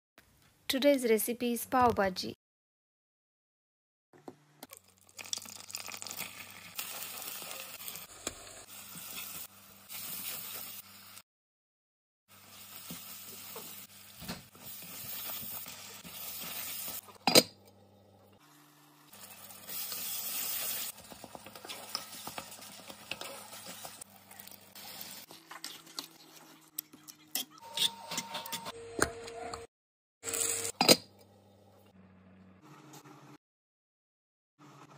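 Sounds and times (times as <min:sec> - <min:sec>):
food sizzling in a pan: 0:05.0 - 0:11.2, 0:12.3 - 0:17.2, 0:18.4 - 0:26.6, 0:30.2 - 0:30.7.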